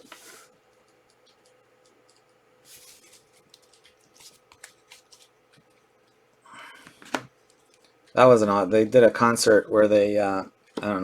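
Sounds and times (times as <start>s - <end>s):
trading cards rustling: 2.7s - 5.8s.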